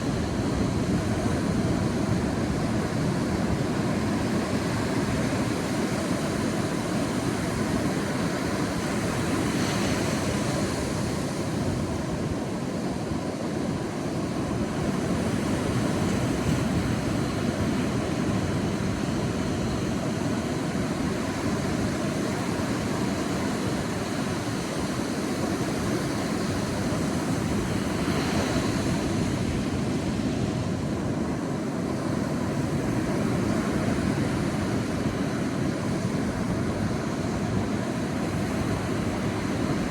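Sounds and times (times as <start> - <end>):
sea waves breaking on beach: 0.0 - 39.9.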